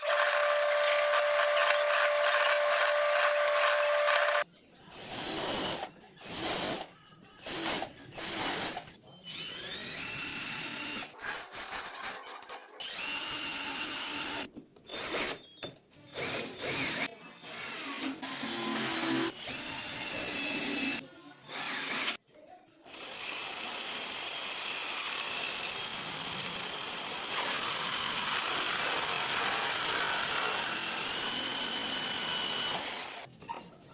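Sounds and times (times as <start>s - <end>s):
power drill running: 0.0s - 4.4s, 7.4s - 11.1s, 12.8s - 15.2s, 16.2s - 22.2s, 22.9s - 33.3s.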